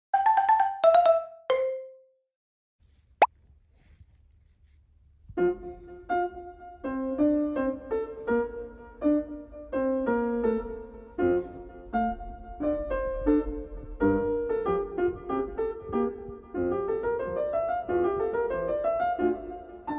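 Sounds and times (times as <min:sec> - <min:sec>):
piano melody with chords: 0:00.1 - 0:02.0.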